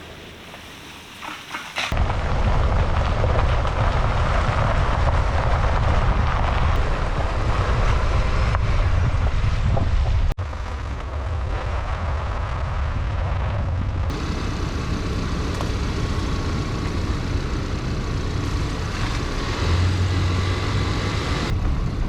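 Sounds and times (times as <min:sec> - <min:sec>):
hiss: 0:00.0 - 0:02.0
vehicle road and engine rumble: 0:00.0 - 0:22.0.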